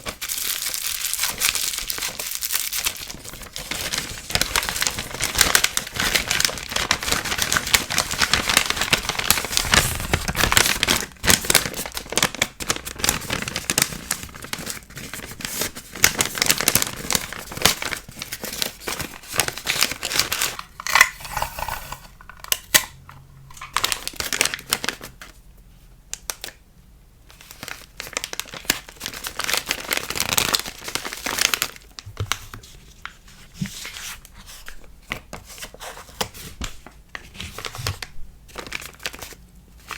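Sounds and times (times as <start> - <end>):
packaging crinkling and rustling: 0.0 - 25.4, 27.3 - 39.9
packaging tearing: 0.1 - 22.9, 23.5 - 25.2, 27.5 - 32.0, 37.5 - 39.9.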